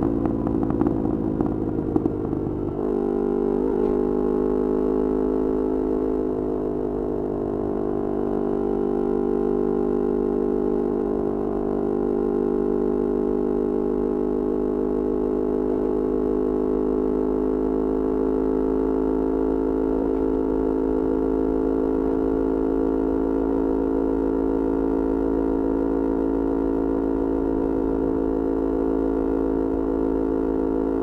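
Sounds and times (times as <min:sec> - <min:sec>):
motorcycle engine droning: 0:00.0 - 0:31.0.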